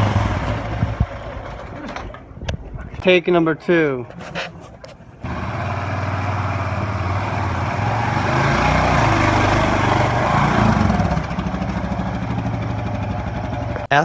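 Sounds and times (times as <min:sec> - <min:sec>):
motorcycle engine running: 0:00.0 - 0:02.2, 0:05.2 - 0:13.9
wind noise: 0:00.1 - 0:03.2.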